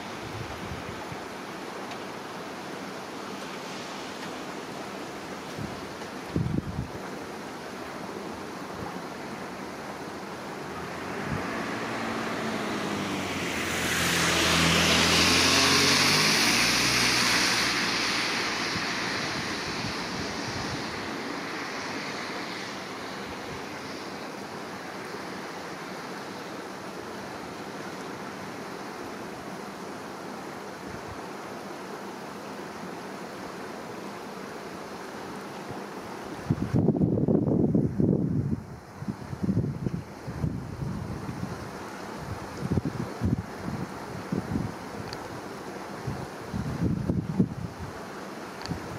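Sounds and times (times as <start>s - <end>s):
river water rushing: 0.0s - 36.7s, 38.6s - 48.9s
motor vehicle passing: 10.6s - 24.2s.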